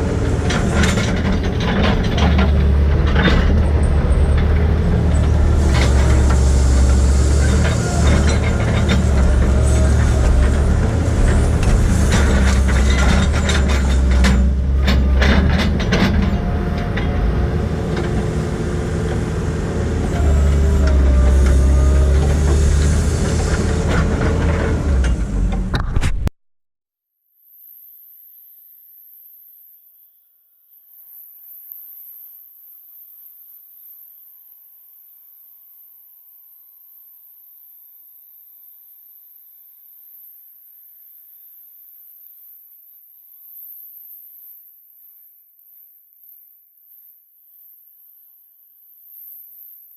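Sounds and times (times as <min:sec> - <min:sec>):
heavy machine engine running: 0:00.0 - 0:25.9
sharp knocks and rattles: 0:00.2 - 0:18.4
faint hiss: 0:27.4 - 0:49.9.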